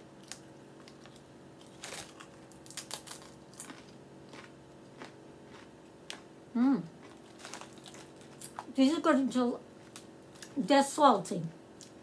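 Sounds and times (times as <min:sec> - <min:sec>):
faint steady hum: 0:00.0 - 0:12.0
person chewing crunchy chips: 0:00.1 - 0:08.8.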